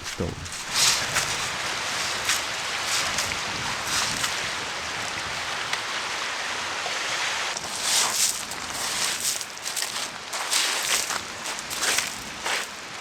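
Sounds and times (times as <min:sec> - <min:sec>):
rustling scrapes: 0:00.0 - 0:02.4
sea surf: 0:00.0 - 0:09.4
wind: 0:00.0 - 0:13.0.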